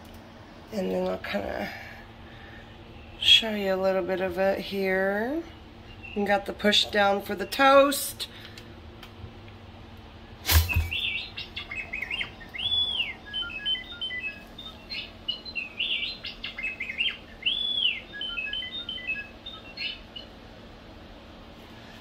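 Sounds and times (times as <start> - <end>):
electronic whistles: 10.6 - 15.0, 16.9 - 19.9
electronic chirping beeps: 10.7 - 20.0.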